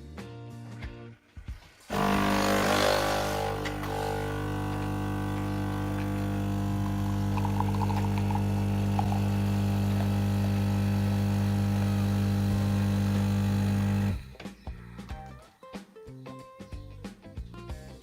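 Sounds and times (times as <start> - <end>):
coffee machine pump buzzing: 1.9 - 14.3.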